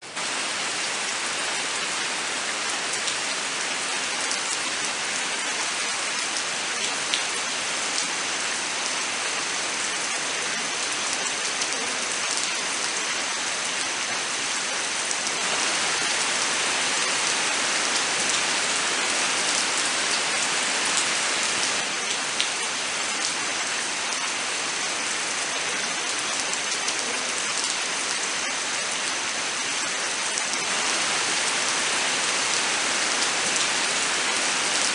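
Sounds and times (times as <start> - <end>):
rain hissing: 0.0 - 27.8, 28.8 - 34.9.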